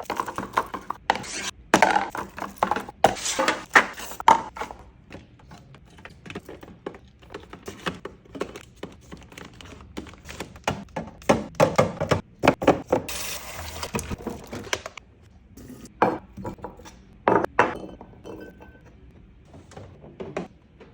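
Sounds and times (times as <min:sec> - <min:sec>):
glass jars clinking and thunking: 0:00.0 - 0:13.1, 0:15.6 - 0:19.0.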